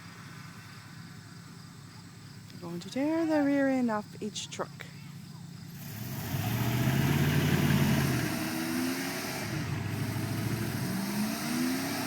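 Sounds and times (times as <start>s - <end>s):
truck engines revving: 5.6s - 12.0s.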